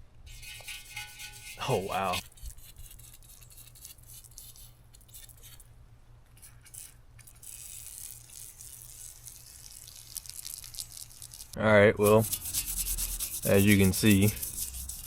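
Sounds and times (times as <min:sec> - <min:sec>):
paint stripper crackling and ticking: 0:06.4 - 0:15.0.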